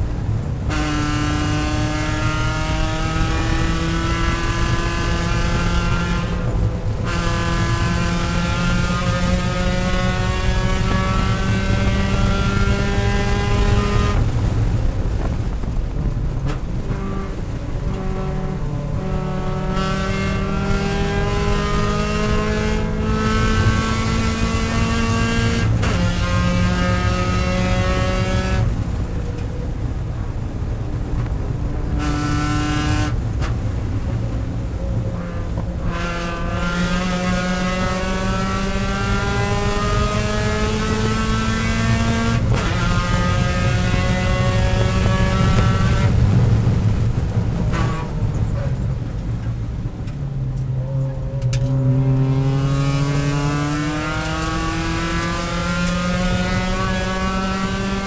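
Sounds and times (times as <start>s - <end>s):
race car engine accelerating: 0.0s - 29.9s, 30.5s - 58.0s.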